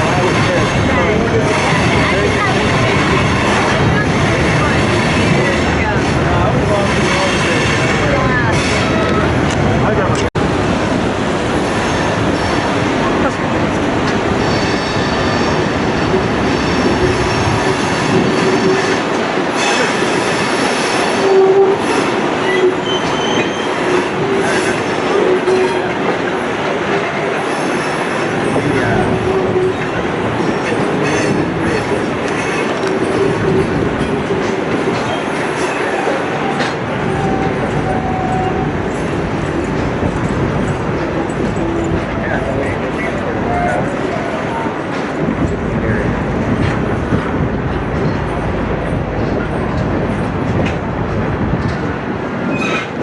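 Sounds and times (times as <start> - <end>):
train rumbling on rails: 0.0 - 53.0
train wheels squealing: 19.6 - 23.8, 52.5 - 52.9.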